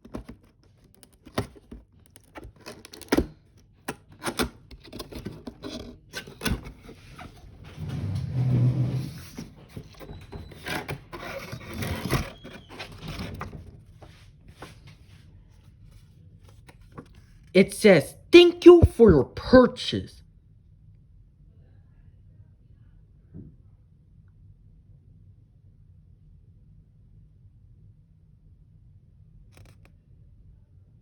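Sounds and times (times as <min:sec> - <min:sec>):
cardboard rubbing and scraping: 0:04.1 - 0:13.7.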